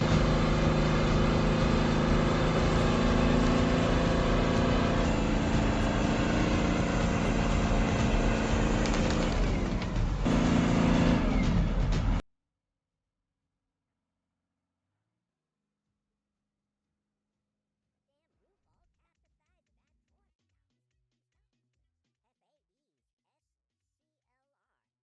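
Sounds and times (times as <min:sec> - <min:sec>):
heavy machine engine running: 0:00.0 - 0:12.2.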